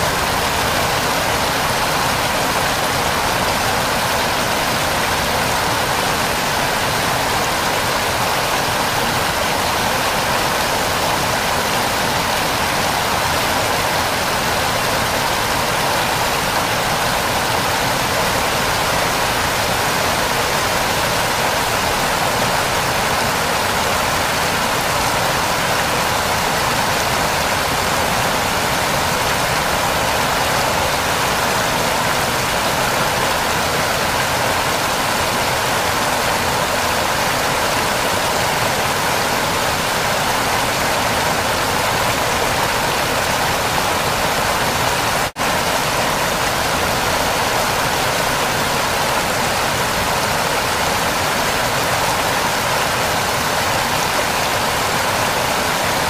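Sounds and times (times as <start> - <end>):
waterfall rushing and splashing: 0.0 - 56.0.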